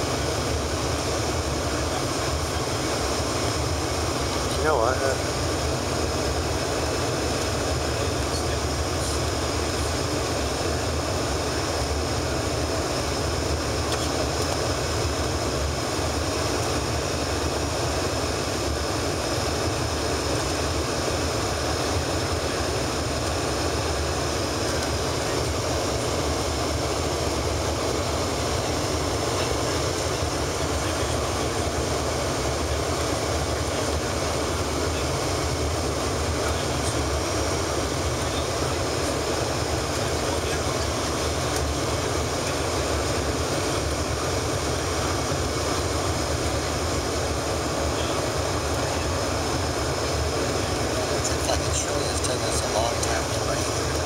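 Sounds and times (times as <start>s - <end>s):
jet cabin engine rush: 0.0s - 54.0s.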